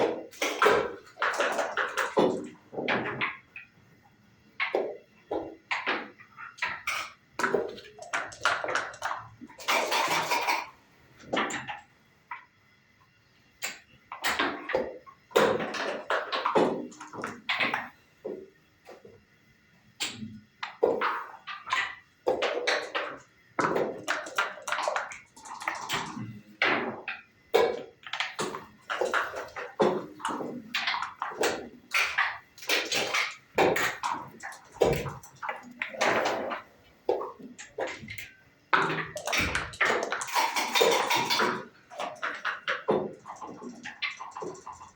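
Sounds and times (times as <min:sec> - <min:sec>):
checkers clacking on board: 0:06.7 - 0:10.7.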